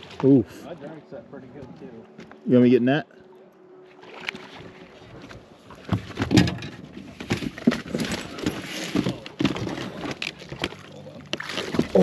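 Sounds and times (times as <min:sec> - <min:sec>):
water splashing: 0:00.0 - 0:01.9, 0:03.9 - 0:12.0
knocks and clatter in a boat: 0:04.1 - 0:12.0.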